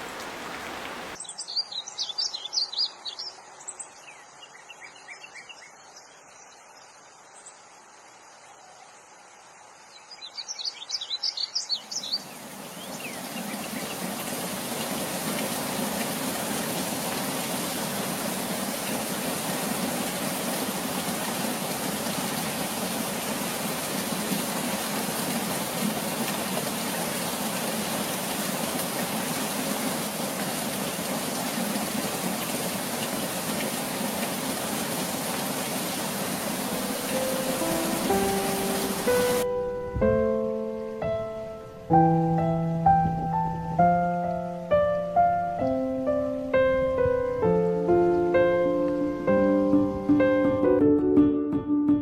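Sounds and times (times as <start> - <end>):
heavy rain rushing: 0.0 - 1.2, 12.0 - 39.5
bird chirping rapidly: 10.2 - 14.1.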